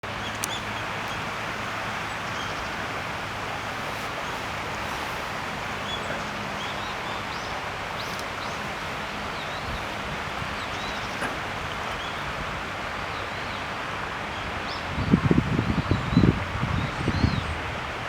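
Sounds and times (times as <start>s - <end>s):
outdoor rushing noise: 0.5s - 13.0s.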